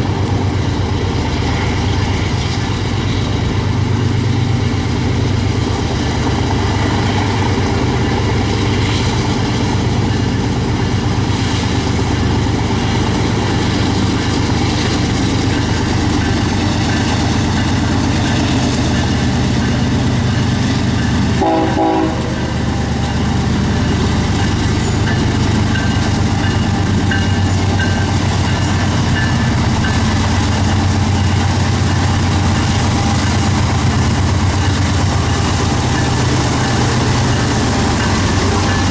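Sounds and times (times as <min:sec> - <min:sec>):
diesel locomotive engine hum: 0:00.0 - 0:38.9
train horn: 0:21.4 - 0:22.5.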